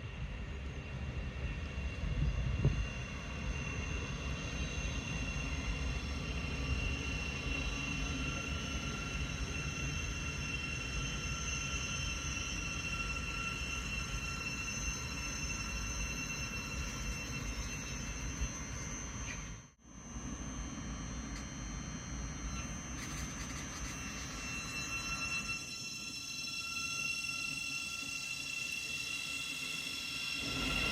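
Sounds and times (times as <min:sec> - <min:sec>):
high whining tones: 0:02.4 - 0:19.7, 0:20.7 - 0:30.9
train wheels rumbling on rail: 0:30.2 - 0:30.9.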